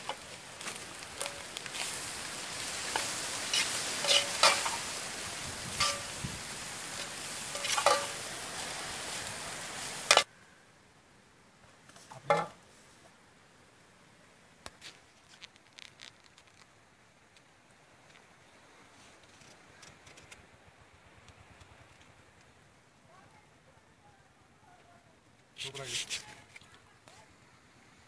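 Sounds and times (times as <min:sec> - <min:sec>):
food sizzling in a wok: 0:00.0 - 0:10.3
metal spatula scraping a pan: 0:01.2 - 0:05.1, 0:05.7 - 0:06.2, 0:06.9 - 0:08.3
ladle clinking on steel plate: 0:03.0 - 0:04.8, 0:05.8 - 0:06.2, 0:07.6 - 0:08.2.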